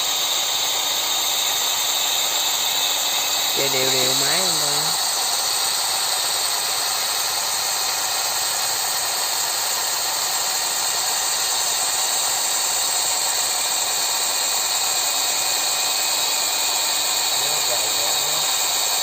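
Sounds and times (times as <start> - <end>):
combine harvester running: 0.0 - 15.2.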